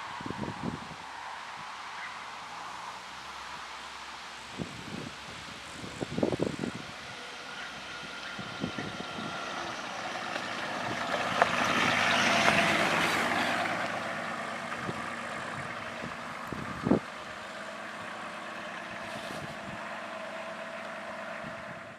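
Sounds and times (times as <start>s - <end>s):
diesel engine running: 5.9s - 21.9s.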